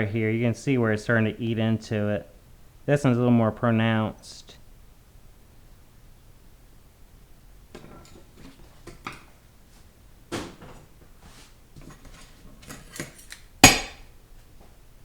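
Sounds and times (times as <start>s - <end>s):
loud sharp metallic clank: 13.6s - 14.1s.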